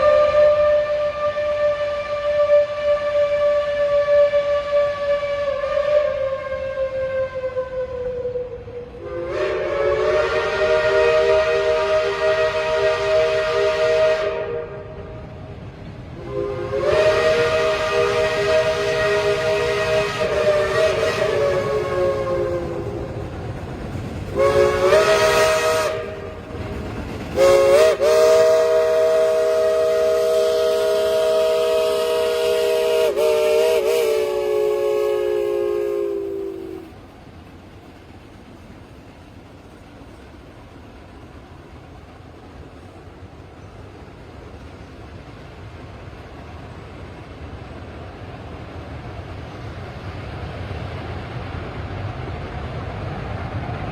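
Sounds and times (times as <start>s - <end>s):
steam locomotive chime whistle: 0.0s - 15.4s, 16.2s - 23.4s, 24.3s - 37.0s
train rolling rumble: 0.0s - 53.9s.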